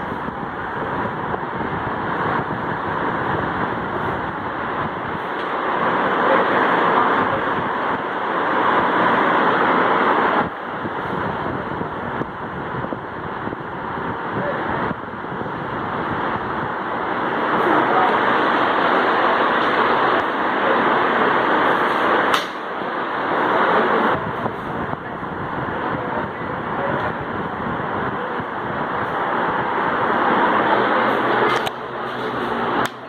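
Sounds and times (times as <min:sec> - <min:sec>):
ceiling fan air rush: 0:00.0 - 0:33.0.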